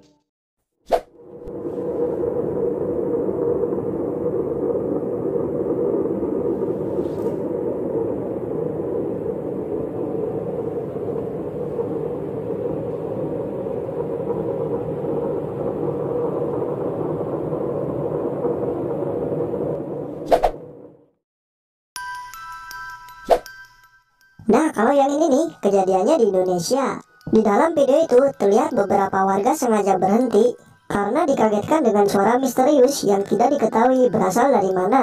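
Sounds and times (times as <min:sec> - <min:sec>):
low rumbling drone: 0:01.2 - 0:21.1.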